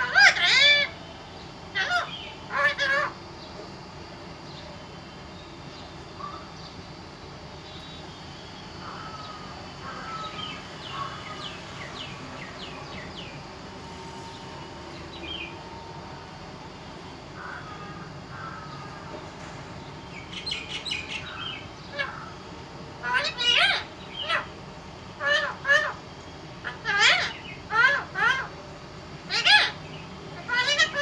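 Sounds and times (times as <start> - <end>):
parrot harsh squawks: 0.0 - 1.0, 1.7 - 3.2, 21.9 - 22.4, 23.0 - 24.6, 25.2 - 26.0, 26.6 - 28.6, 29.3 - 29.8, 30.4 - 31.0.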